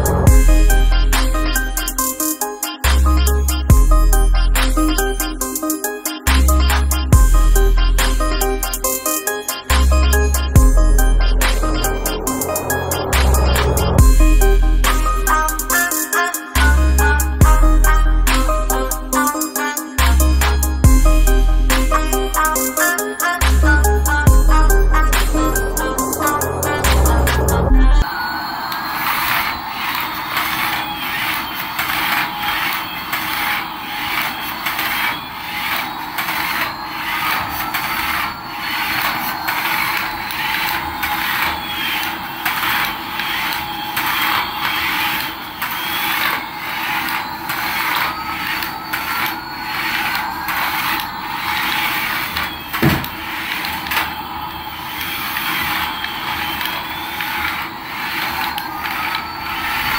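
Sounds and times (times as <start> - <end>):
sliding electronic tones: 0.0 - 59.9
toy motor and gears rattling: 29.0 - 59.9
sharp knock: 52.8 - 53.1.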